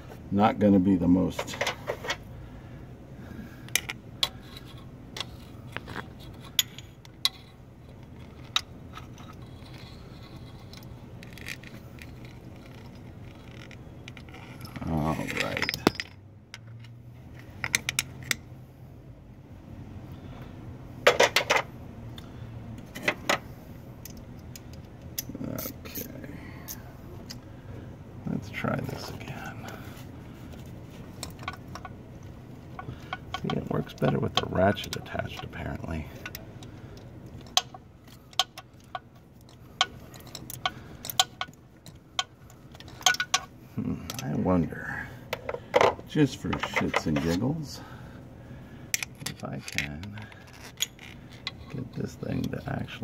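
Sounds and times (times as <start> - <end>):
low steady hum: 0.0 - 53.0
metal tools clinking: 8.2 - 16.2, 37.4 - 43.5.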